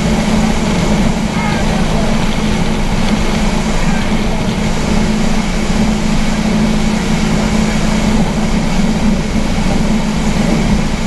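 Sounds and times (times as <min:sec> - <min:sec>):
rush of wind and water: 0:00.0 - 0:11.0
speedboat engine running: 0:00.0 - 0:11.0.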